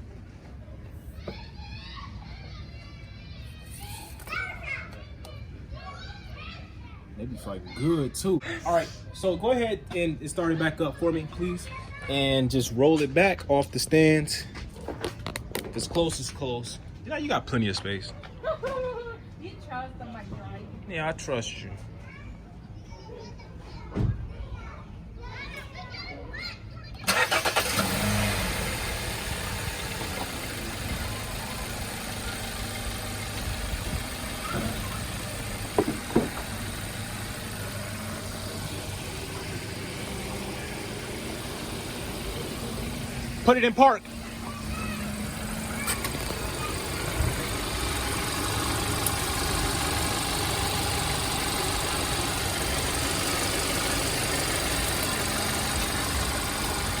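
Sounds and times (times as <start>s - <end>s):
car engine idling: 27.1s - 57.0s
short thump: 35.7s - 36.5s.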